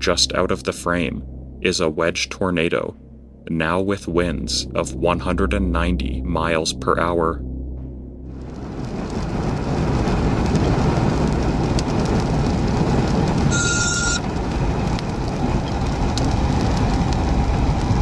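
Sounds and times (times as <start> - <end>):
heavy wind and rain: 8.3 - 18.0
short electronic beep: 13.5 - 14.2.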